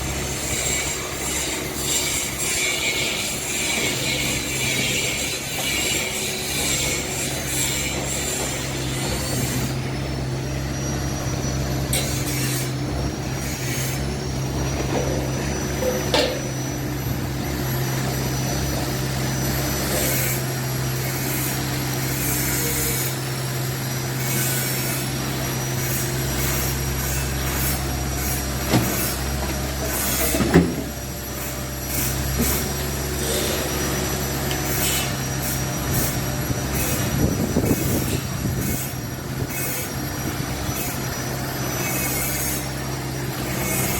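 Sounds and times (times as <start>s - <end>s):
excavator diesel engine running: 0.0s - 43.9s
metal clanks: 15.8s - 16.6s.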